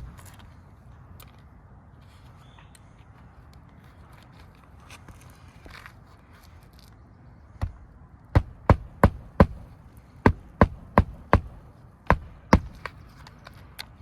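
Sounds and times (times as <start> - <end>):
hammer driving nails: 7.6 - 13.0.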